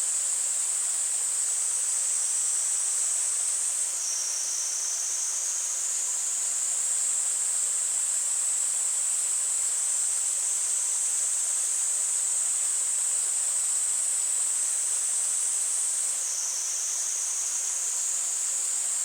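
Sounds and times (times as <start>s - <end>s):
cicadas singing: 16.2s - 18.8s.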